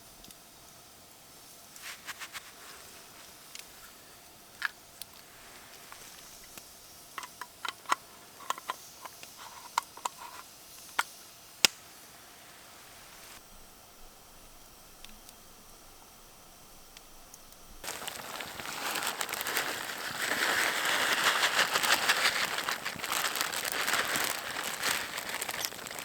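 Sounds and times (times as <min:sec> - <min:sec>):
campfire crackling and popping: 0:17.8 - 0:26.0.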